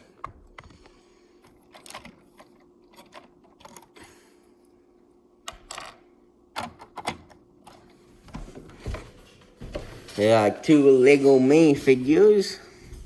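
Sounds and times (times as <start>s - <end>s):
faint steady hum: 0.0s - 13.0s
plastic toy parts clicking and rattling: 1.4s - 4.0s.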